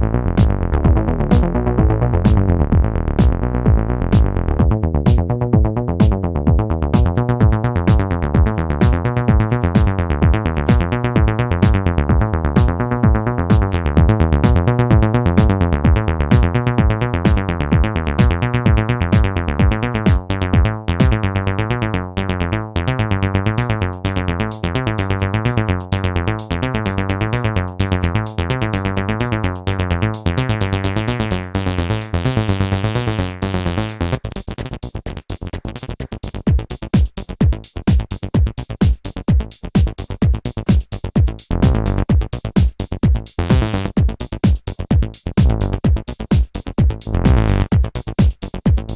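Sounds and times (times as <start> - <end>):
drum machine beat: 0.0 - 21.2, 23.4 - 48.9
synthesizer bass sequence: 0.0 - 48.9
hissing hi-hat percussion: 23.6 - 48.9.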